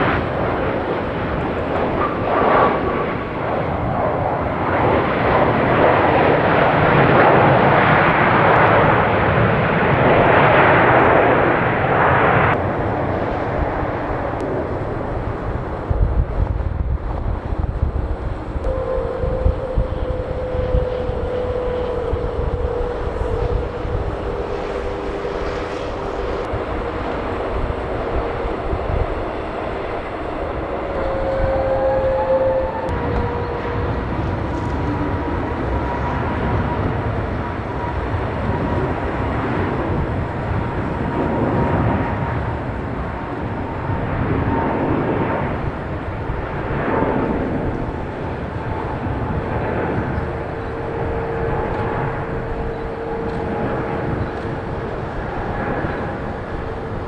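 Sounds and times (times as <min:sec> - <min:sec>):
jet engines at takeoff: 0:00.0 - 0:57.0.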